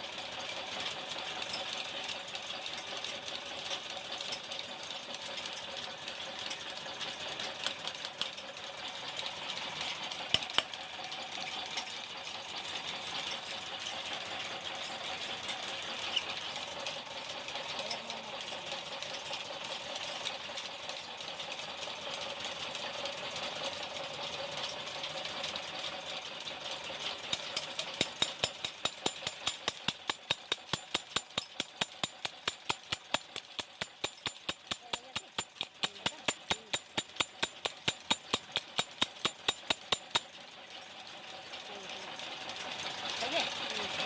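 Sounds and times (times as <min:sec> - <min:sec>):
steady machine noise: 0:08.5 - 0:40.8
sharp metallic taps: 0:10.3 - 0:10.7, 0:27.3 - 0:40.3.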